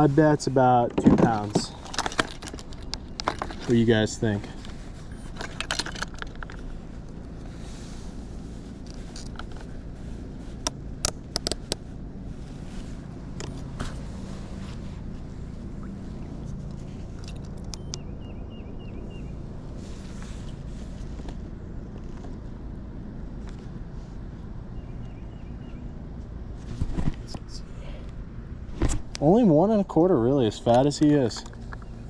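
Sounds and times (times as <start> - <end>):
steady low hum: 0.0 - 32.0
clicks and knocks of gear: 0.8 - 7.2, 8.8 - 9.8, 10.6 - 11.8, 16.6 - 18.0.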